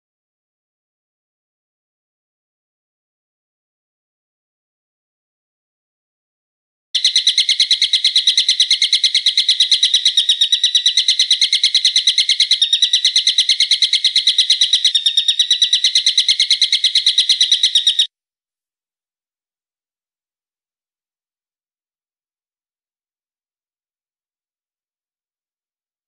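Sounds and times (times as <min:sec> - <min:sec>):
bird call of sharp repeated notes: 0:07.0 - 0:18.1.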